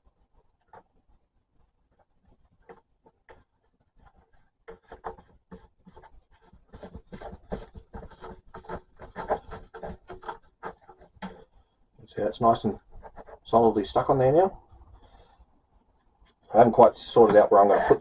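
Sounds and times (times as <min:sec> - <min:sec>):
plastic parts scraping and clicking: 0:04.0 - 0:11.6, 0:16.9 - 0:18.0.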